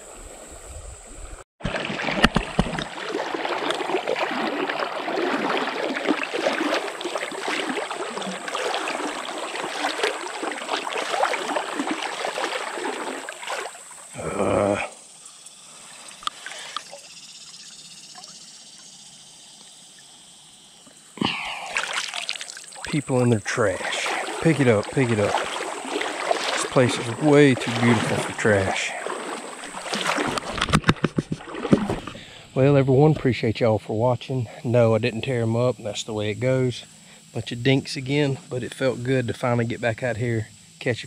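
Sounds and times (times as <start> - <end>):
wading through shallow water: 1.6 - 15.0, 15.7 - 18.4, 21.2 - 32.6.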